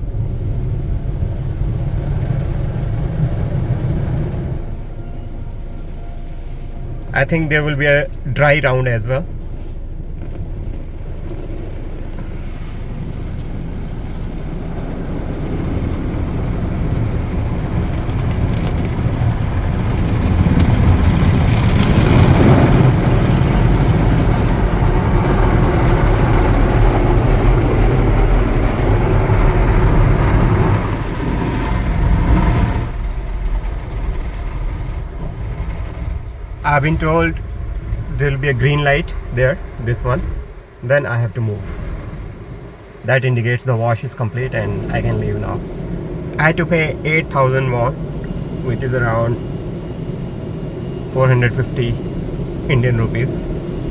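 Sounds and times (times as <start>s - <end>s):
car wash rushing: 0.0s - 53.9s.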